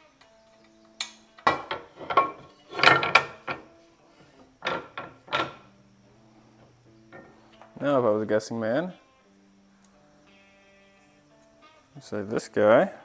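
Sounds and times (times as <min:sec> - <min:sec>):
soft background music: 0:00.0 - 0:13.0
machine parts knocking and scraping: 0:01.5 - 0:03.7, 0:04.6 - 0:05.7.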